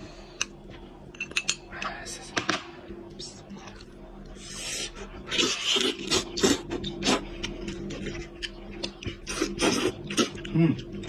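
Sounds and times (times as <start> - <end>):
chewing and lip-smacking: 5.3 - 11.0.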